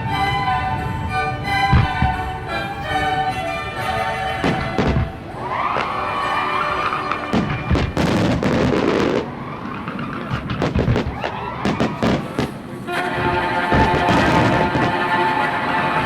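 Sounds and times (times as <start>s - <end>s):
music playing: 0.0s - 9.2s, 11.7s - 16.0s
fireworks bangs and crackles: 1.7s - 2.3s, 4.4s - 15.2s.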